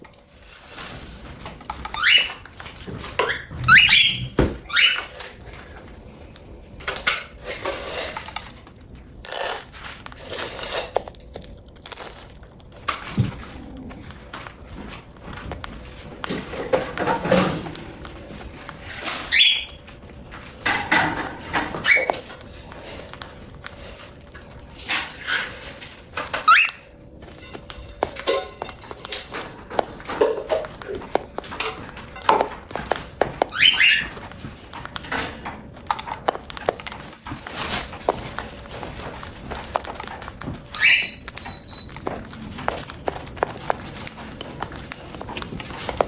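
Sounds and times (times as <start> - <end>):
cockatiels chirping: 1.8 - 2.4, 3.2 - 5.3, 18.7 - 19.9, 20.7 - 22.3, 26.2 - 26.9, 32.2 - 35.1, 39.7 - 44.0.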